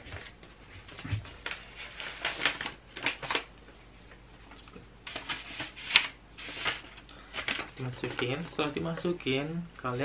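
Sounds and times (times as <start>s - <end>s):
paper rustling: 0.0s - 3.5s, 5.0s - 9.1s.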